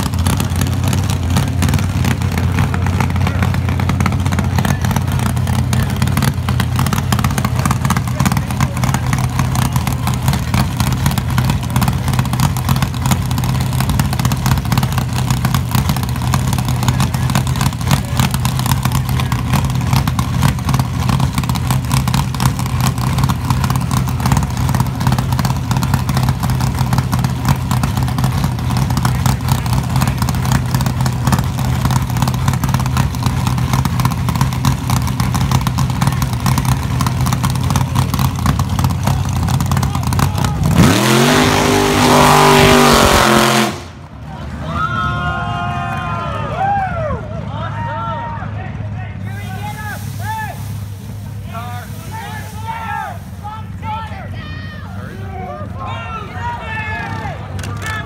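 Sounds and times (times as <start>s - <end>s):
racing car engine running: 0.0s - 44.8s.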